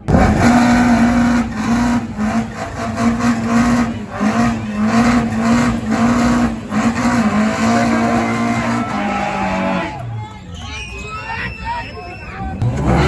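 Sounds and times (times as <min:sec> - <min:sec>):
sharp exhaust bangs: 0:00.0 - 0:09.8
racing car engine at high revs: 0:00.0 - 0:09.9, 0:12.6 - 0:13.0.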